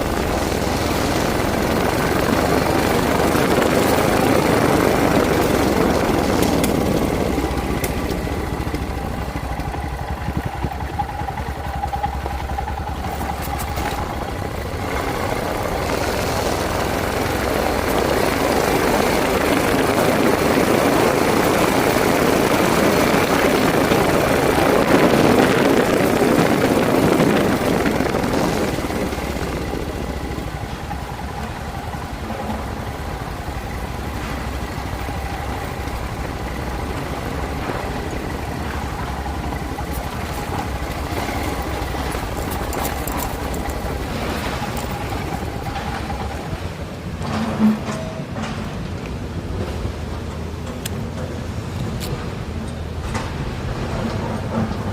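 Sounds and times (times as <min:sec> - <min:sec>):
motorcycle engine running: 0:00.0 - 0:48.0
rushing noise: 0:00.0 - 0:54.9.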